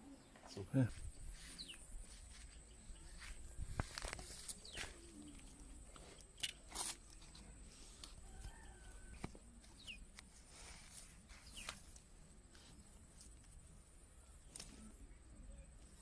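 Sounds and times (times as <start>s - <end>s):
faint chicken clucks: 8.0s - 10.1s.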